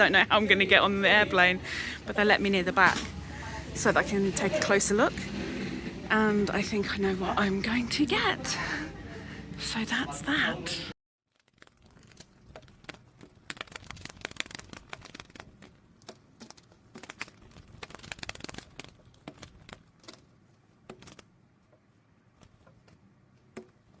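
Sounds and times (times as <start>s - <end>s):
packaging crinkling: 11.3s - 21.3s.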